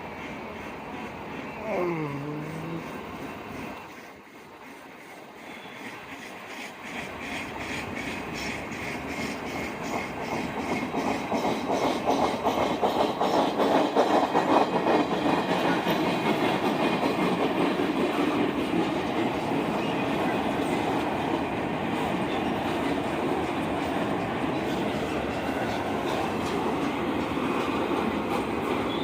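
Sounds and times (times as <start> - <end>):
train wheels clacking over rail joints: 3.3 - 29.0.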